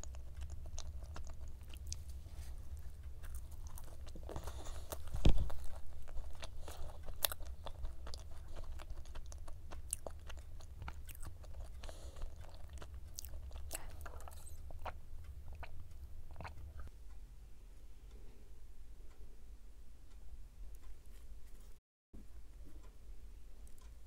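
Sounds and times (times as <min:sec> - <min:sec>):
chewing flaky pastry: 0:00.0 - 0:16.9.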